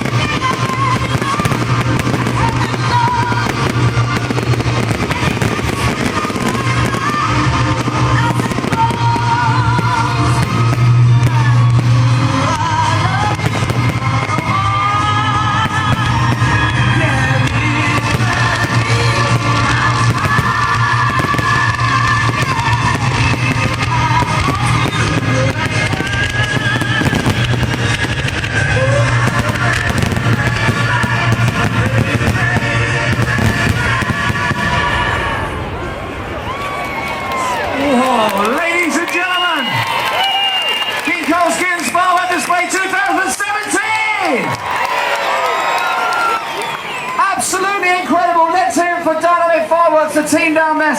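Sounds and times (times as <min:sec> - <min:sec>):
loud music with bass: 0:00.0 - 0:35.2
fireworks crackling and popping: 0:00.0 - 0:50.6.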